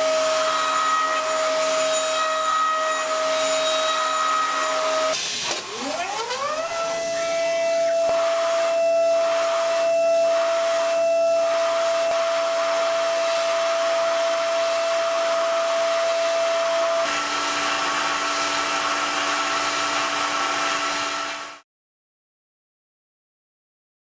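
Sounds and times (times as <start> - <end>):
metal cutting noise: 0.0 - 21.6
spindle whine: 0.4 - 18.8.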